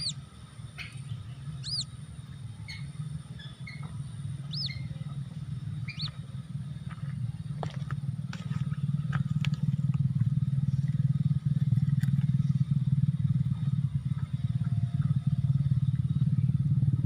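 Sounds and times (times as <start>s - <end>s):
faint bird chirps: 0.0s - 0.2s, 0.8s - 2.0s, 2.6s - 6.2s
high arching bird peeps: 0.0s - 6.2s
low rumble: 1.0s - 7.6s.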